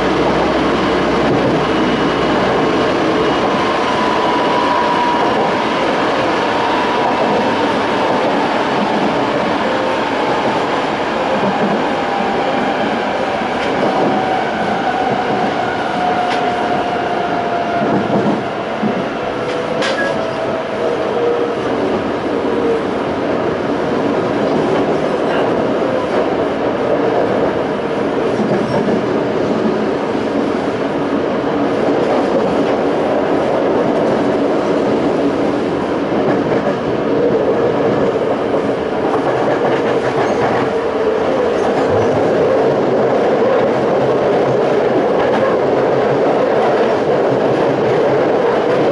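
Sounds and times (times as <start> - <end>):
train wheels rumbling on rail: 0.0 - 48.9
rail-joint clicks: 17.9 - 20.4.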